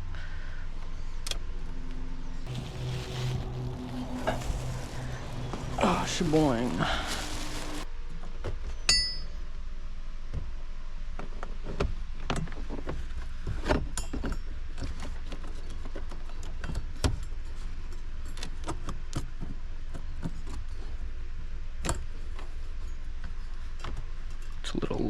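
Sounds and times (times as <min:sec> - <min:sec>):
steady low hum: 0:02.3 - 0:07.9.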